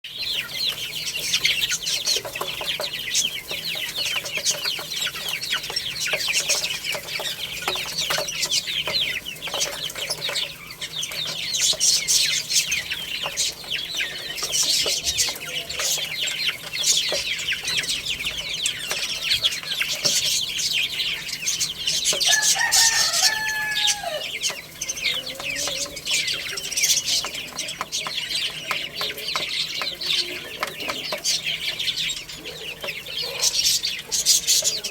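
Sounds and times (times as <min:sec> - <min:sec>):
baby chicks peeping: 0:00.0 - 0:34.9.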